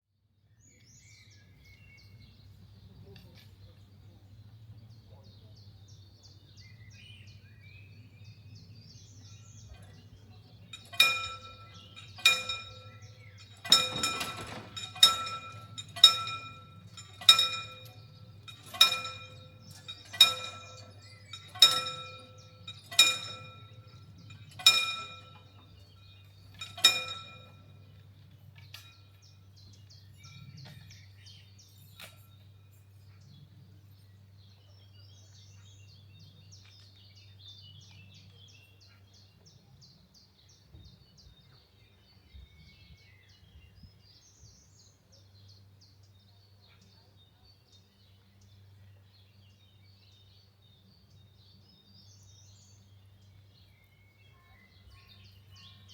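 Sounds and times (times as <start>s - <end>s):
faint bird chirps: 50.2s - 55.9s.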